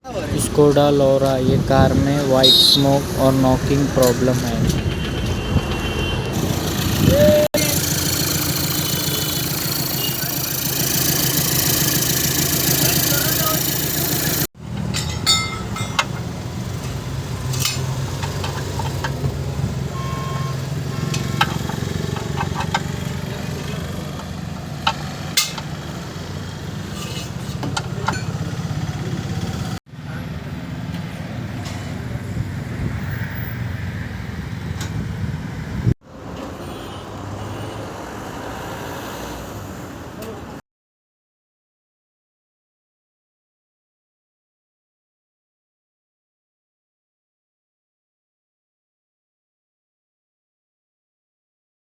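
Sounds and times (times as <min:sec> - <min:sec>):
engine clicks and knocks: 0:03.9 - 0:19.9, 0:20.7 - 0:26.0, 0:26.8 - 0:29.8
car engine idling: 0:06.3 - 0:14.5.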